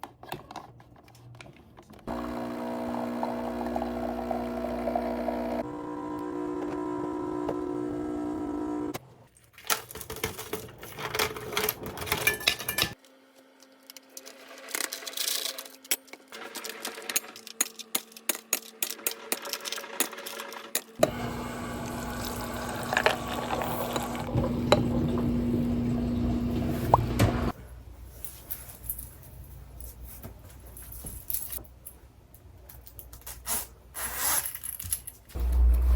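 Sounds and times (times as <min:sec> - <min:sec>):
loud steady whirring: 0:02.1 - 0:09.0
appliance hum: 0:02.1 - 0:09.3, 0:21.0 - 0:27.8, 0:35.3 - 0:35.9
dishes and utensils clinking: 0:11.0 - 0:13.0.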